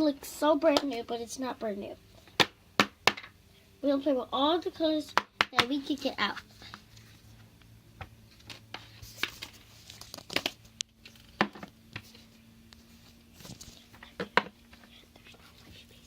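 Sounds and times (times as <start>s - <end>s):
crinkling of plastic tubs: 8.4s - 11.7s.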